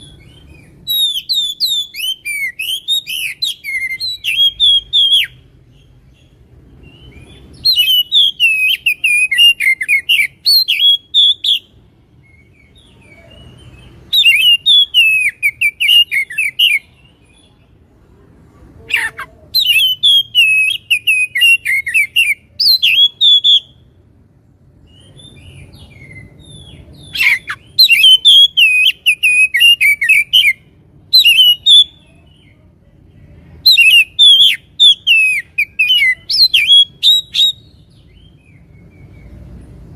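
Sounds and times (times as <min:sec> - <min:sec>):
bird warbling song: 0:24.8 - 0:32.6.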